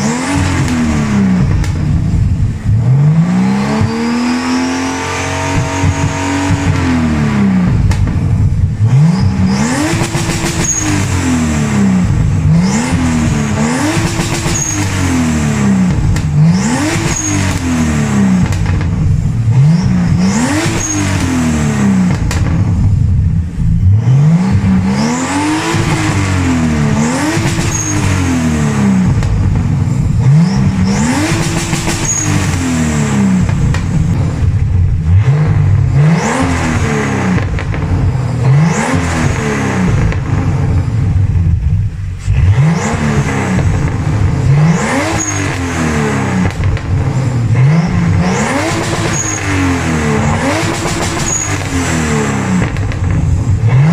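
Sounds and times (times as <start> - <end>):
car engine revving: 0.0 - 53.9.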